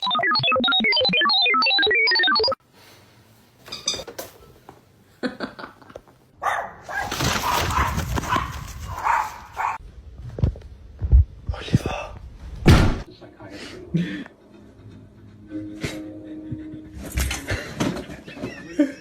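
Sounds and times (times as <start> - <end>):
dog barking and whining: 6.4 - 9.8.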